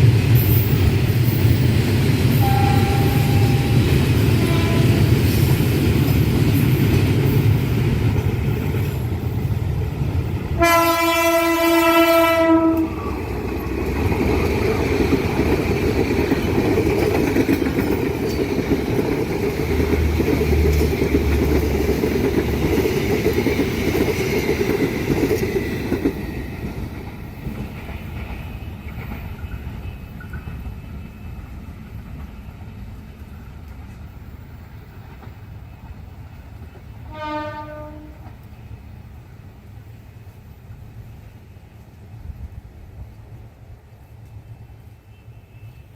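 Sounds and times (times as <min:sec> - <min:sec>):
train rolling over rails: 0:00.0 - 0:44.9
locomotive horn blast: 0:02.4 - 0:05.3, 0:10.6 - 0:13.2, 0:37.1 - 0:38.3.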